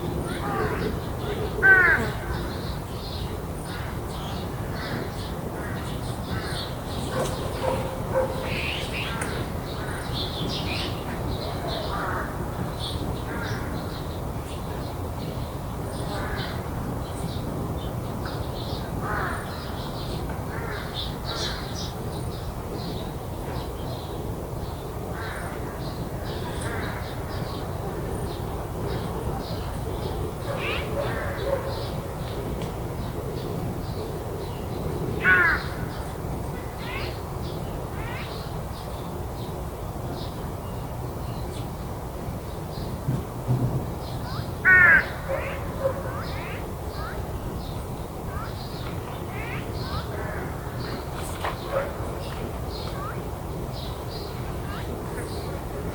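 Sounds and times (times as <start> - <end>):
crows cawing: 1.6 - 2.5, 35.2 - 36.0, 44.6 - 45.6
small birds chirping: 44.0 - 55.9.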